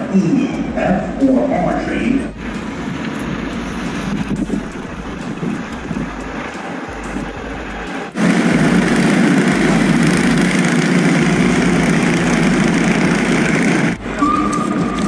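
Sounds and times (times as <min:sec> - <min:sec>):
loud engine running: 0:02.4 - 0:14.2.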